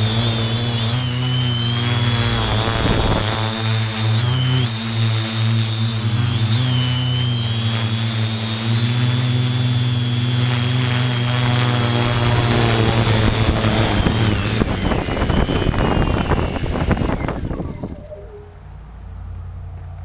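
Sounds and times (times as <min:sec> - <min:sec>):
drone motors buzzing: 0:00.0 - 0:19.3
rush of wind: 0:02.4 - 0:03.5, 0:12.0 - 0:18.6.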